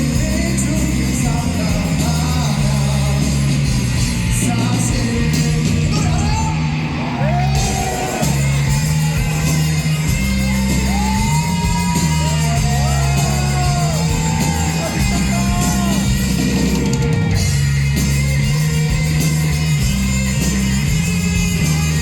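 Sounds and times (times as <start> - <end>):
live rock band playing: 0.0 - 22.0
person yelling: 10.8 - 16.2.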